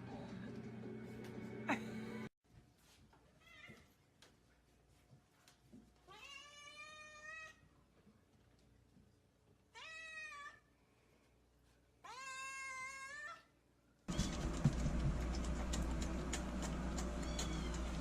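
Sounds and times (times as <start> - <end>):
cat meowing: 17.1 - 18.0.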